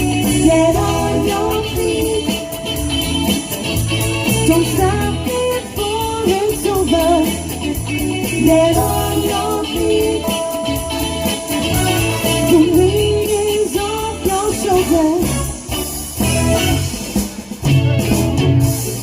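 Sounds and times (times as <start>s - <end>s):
woman singing: 0.0s - 2.8s, 4.3s - 10.7s, 12.4s - 15.5s
bass guitar: 0.0s - 19.0s
drums: 0.0s - 19.0s
electric guitar: 0.0s - 19.0s.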